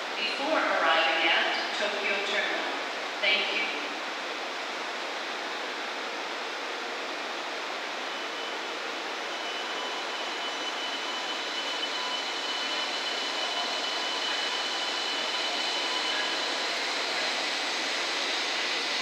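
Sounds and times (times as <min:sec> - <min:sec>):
train running noise: 0:00.0 - 0:19.0
thin high whine: 0:07.9 - 0:19.0.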